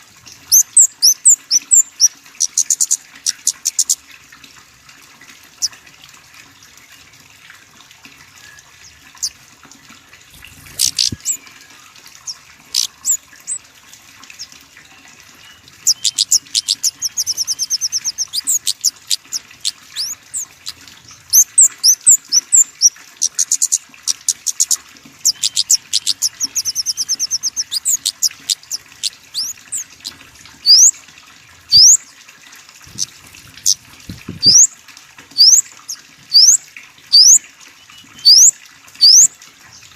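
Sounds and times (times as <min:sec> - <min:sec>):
songbird chirping and trilling: 0:00.2 - 0:04.0, 0:10.3 - 0:13.6, 0:14.3 - 0:31.0, 0:31.7 - 0:32.1, 0:32.8 - 0:34.7, 0:35.4 - 0:39.9.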